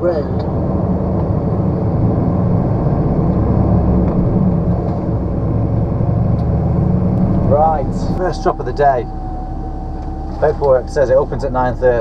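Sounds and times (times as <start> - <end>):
lorry diesel engine droning: 0.0 - 12.0
road noise: 0.0 - 12.0.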